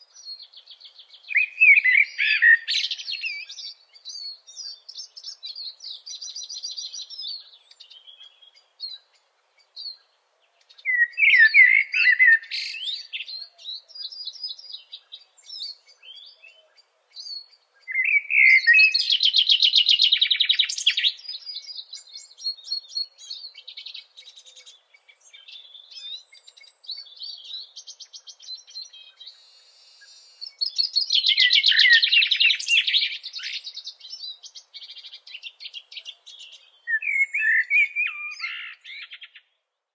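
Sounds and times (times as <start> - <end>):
songbird singing with trills: 0.0 - 39.9
bird twittering: 1.3 - 9.0, 17.2 - 39.5.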